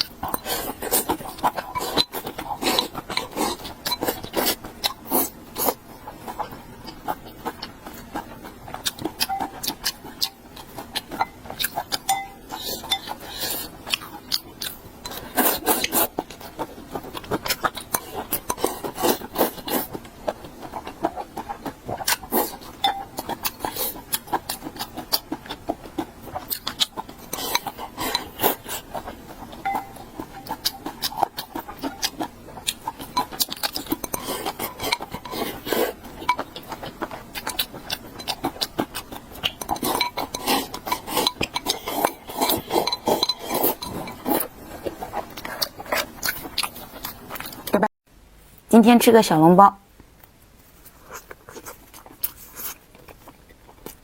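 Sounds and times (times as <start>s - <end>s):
utensils clinking against dishes: 9.2s - 10.4s, 11.1s - 13.2s, 22.8s - 23.3s, 29.6s - 31.1s, 39.6s - 44.5s.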